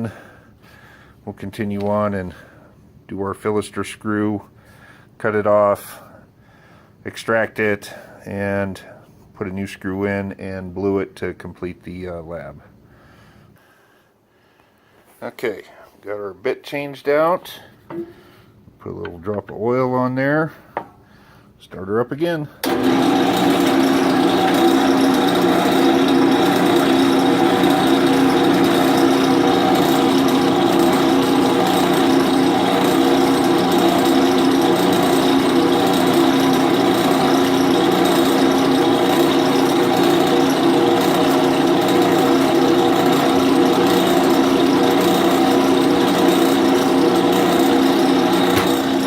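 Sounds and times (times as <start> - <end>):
drill bit drilling through aluminum: 22.6 - 49.0
drill press motor running: 22.6 - 49.0.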